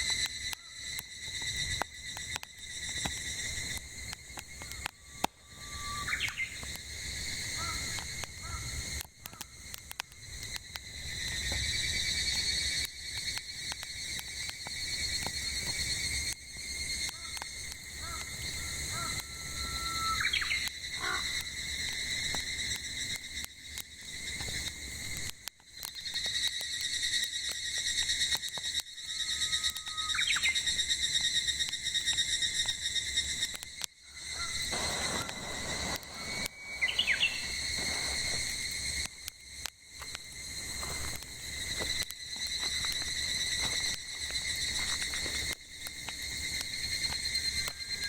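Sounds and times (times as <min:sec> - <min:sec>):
campfire crackling and popping: 0:00.0 - 0:48.0
cicadas droning: 0:00.0 - 0:48.0
bird whistling: 0:05.6 - 0:06.6, 0:19.2 - 0:20.7, 0:34.2 - 0:38.5.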